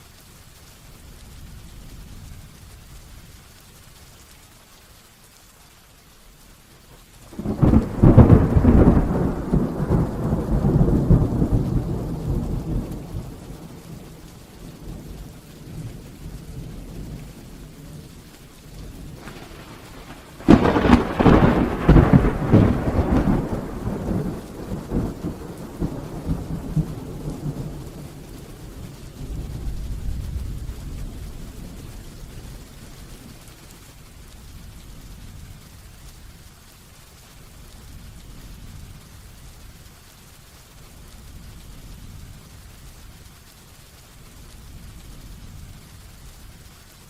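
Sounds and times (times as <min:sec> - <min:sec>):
heavy rain: 0:00.0 - 0:47.0
thunderclaps rumbling: 0:07.2 - 0:33.7.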